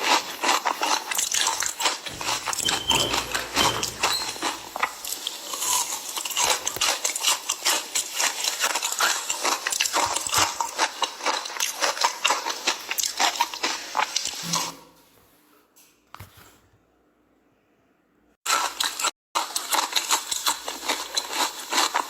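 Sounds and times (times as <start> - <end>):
ice being chewed: 0.0 - 2.1, 4.8 - 14.4, 18.5 - 22.0.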